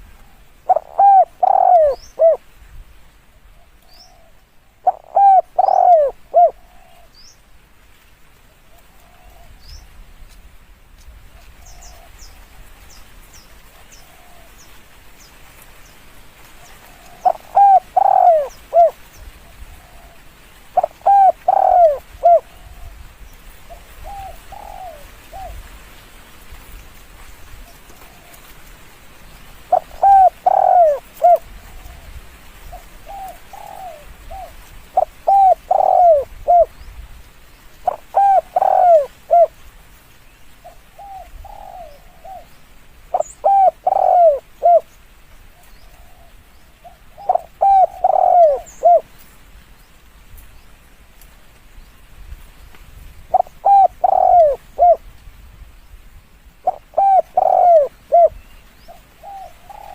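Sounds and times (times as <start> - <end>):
dove cooing: 0.0 - 2.4, 3.5 - 7.2, 8.7 - 9.8, 13.7 - 14.6, 16.6 - 23.1, 23.7 - 25.8, 27.6 - 28.8, 29.5 - 36.8, 37.8 - 39.7, 40.6 - 49.2, 53.3 - 55.1, 56.6 - 59.9.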